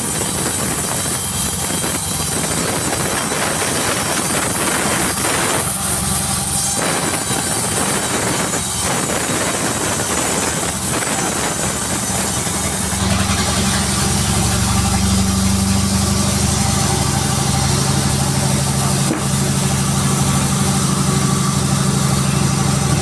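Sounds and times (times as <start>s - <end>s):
sawmill engine running: 0.0s - 23.0s.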